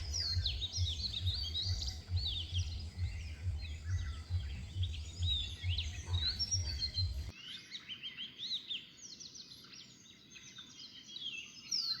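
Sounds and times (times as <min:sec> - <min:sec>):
low pulsing thump: 0:00.0 - 0:07.3
songbirds chirping: 0:00.0 - 0:12.0.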